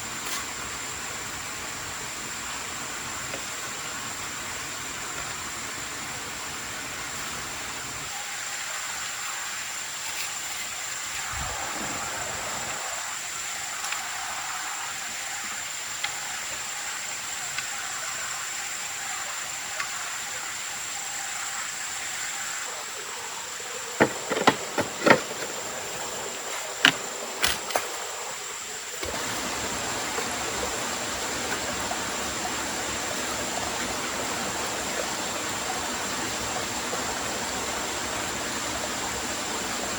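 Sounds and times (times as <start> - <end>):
water rushing: 0.0 - 39.9
high-pitched insect tone: 8.1 - 39.6.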